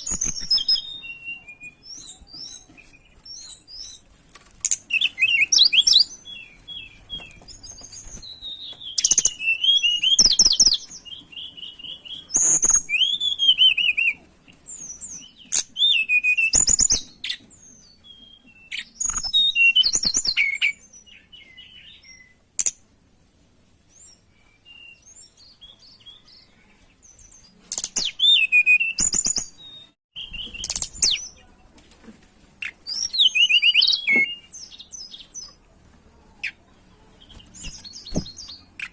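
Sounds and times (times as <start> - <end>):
songbird chirping and warbling: 0.0 - 22.9, 23.7 - 38.9.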